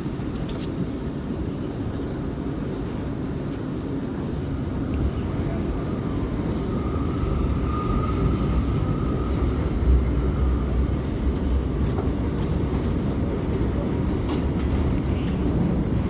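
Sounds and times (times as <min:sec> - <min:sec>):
wheels rumbling on rail: 0:00.0 - 0:16.0
faint high wheel squeal: 0:07.1 - 0:11.6.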